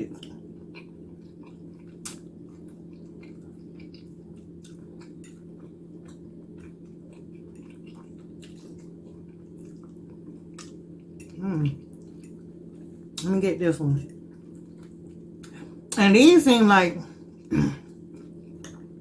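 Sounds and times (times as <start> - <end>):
soft eating clicks: 0.1 - 13.4, 14.0 - 16.1, 17.4 - 19.0
wet chewing: 0.2 - 13.3.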